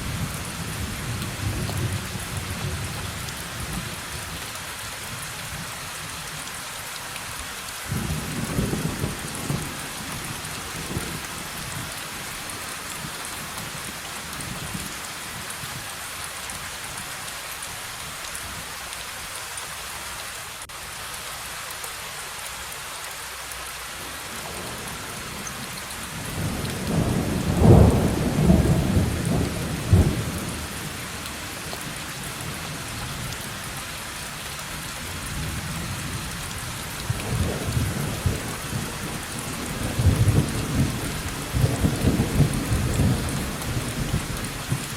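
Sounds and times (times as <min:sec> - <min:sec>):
steady rain: 0:00.0 - 0:44.9
thunder rumbling: 0:26.2 - 0:30.9, 0:37.0 - 0:44.9.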